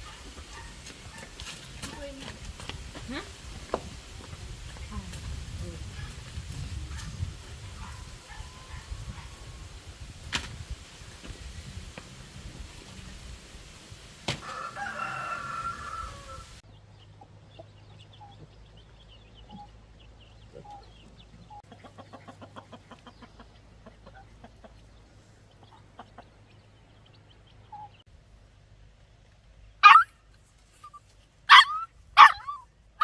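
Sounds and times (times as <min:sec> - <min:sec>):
rooster crowing: 0:14.4 - 0:16.6.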